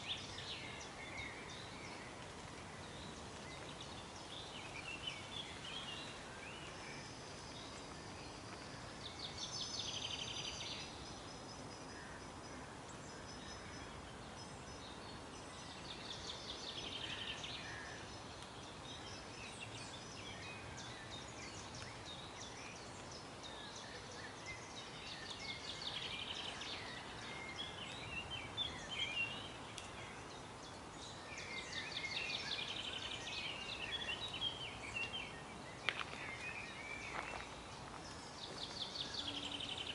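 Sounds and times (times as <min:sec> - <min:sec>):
steady background hiss: 0:00.0 - 0:39.9
bird chirps: 0:13.1 - 0:39.9.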